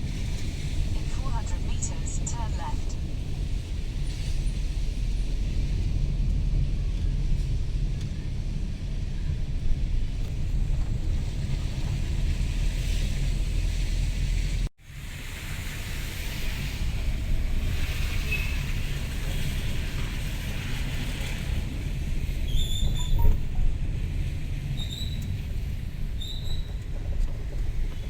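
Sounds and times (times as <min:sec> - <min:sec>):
traffic road noise: 0:00.0 - 0:28.0
short high chirps: 0:22.8 - 0:23.8.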